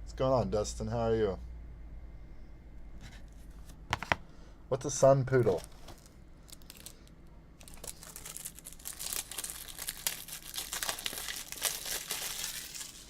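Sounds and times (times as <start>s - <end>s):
plastic crinkling and rustling: 5.4s - 13.0s.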